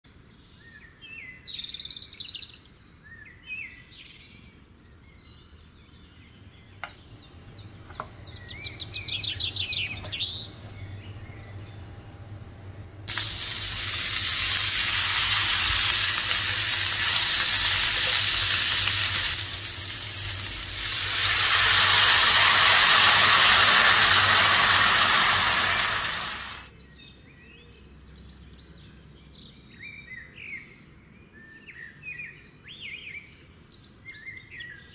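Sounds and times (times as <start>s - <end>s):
small birds chirping: 0.1s - 34.9s
food sizzling in hot oil: 13.1s - 26.7s.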